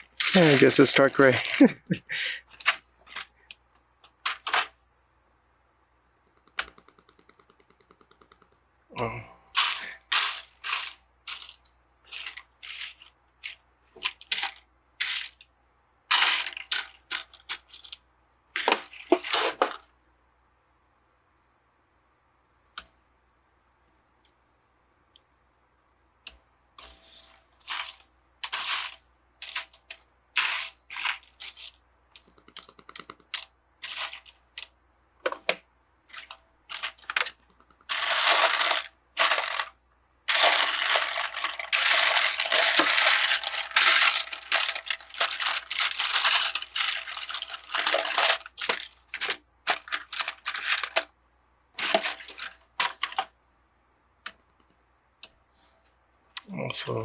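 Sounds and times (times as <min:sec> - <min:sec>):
plastic bricks clattering: 0:00.0 - 0:03.3, 0:09.6 - 0:15.5, 0:16.1 - 0:18.0, 0:18.6 - 0:19.9, 0:26.8 - 0:51.1, 0:51.8 - 0:53.3.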